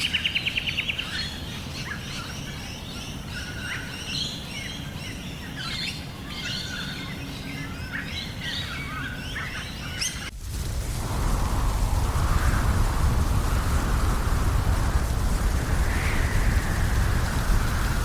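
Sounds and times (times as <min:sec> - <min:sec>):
birds chirping and trilling: 0:00.0 - 0:10.3
low rumble: 0:10.3 - 0:18.0
rain falling: 0:10.3 - 0:18.0.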